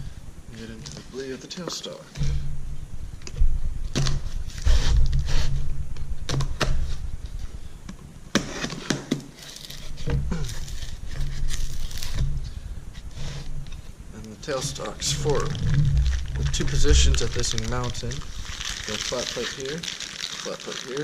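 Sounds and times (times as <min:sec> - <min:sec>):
low steady hum: 0:00.0 - 0:21.0
packaging rustling: 0:09.3 - 0:12.4, 0:14.2 - 0:21.0.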